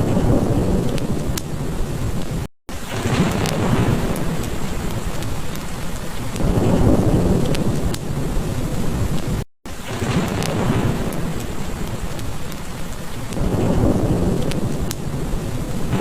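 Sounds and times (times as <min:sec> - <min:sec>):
heavy rain hissing: 0:00.0 - 0:16.0
low thunder rumble: 0:00.0 - 0:16.0
wood fire crackling: 0:00.0 - 0:16.0.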